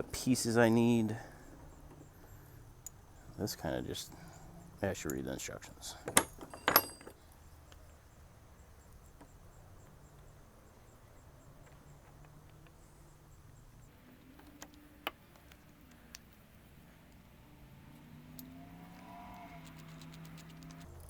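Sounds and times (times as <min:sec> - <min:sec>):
small metal parts clinking: 0:05.0 - 0:08.0
faint clicks: 0:17.9 - 0:21.0.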